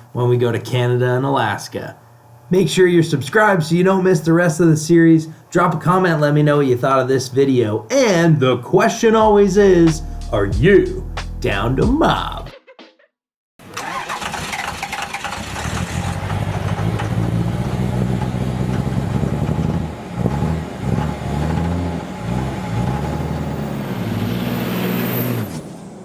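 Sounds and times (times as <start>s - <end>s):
vehicle engine revving: 13.9s - 25.8s.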